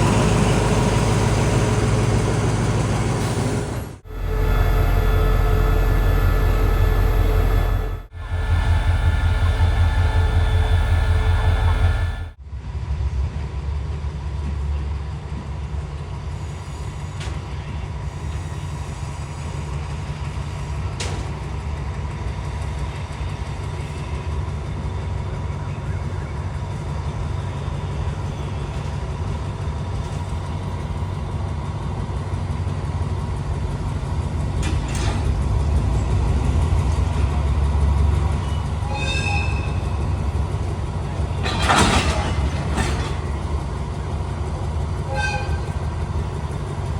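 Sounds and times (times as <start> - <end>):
diesel train engine rumble: 0.0 - 46.9
faint steady whine: 4.1 - 12.4.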